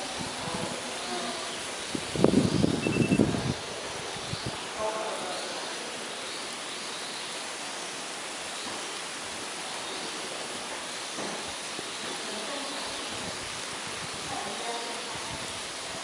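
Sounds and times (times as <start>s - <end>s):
steady even hiss: 0.0s - 16.0s
faint high birdsong: 1.0s - 3.5s.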